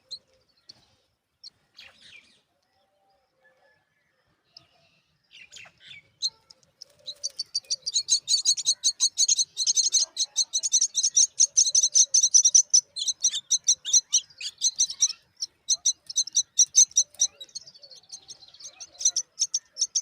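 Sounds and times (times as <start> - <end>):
chicks chirping: 6.2 - 20.0.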